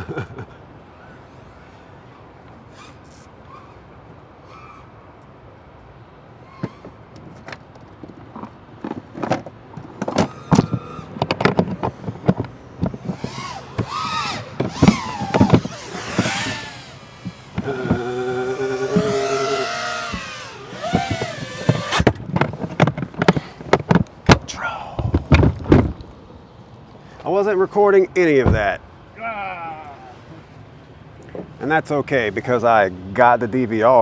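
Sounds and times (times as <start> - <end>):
drone motor whine: 13.0 - 22.2.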